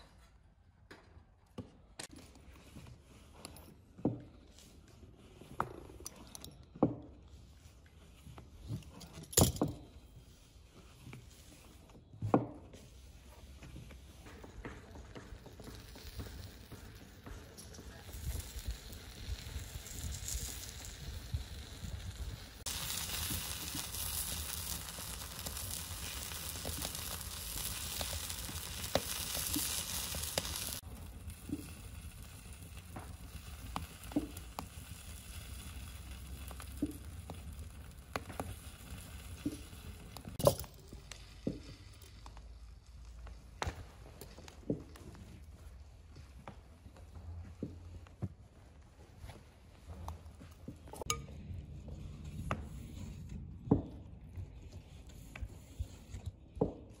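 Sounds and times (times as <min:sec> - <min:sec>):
food sizzling on a griddle: 0:15.2 - 0:40.6.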